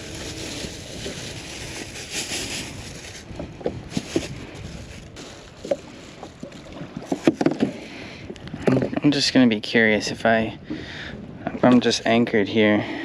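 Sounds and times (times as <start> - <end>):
water lapping against kayak: 0.0 - 9.0
wind on microphone: 0.0 - 9.3, 9.9 - 12.1.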